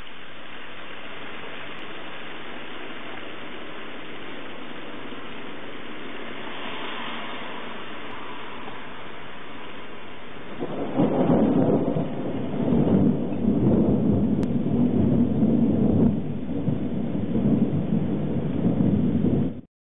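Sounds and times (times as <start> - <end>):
rain hissing: 0.0 - 19.7
thunder rumbling: 0.0 - 19.7.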